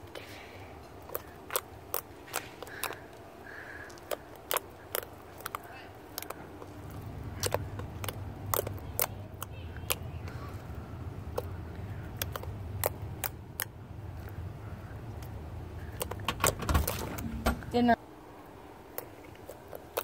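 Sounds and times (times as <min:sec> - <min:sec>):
low steady hum: 0:00.0 - 0:20.0
slime squishing with sticky pops: 0:00.8 - 0:10.5, 0:11.2 - 0:14.4, 0:18.9 - 0:20.0.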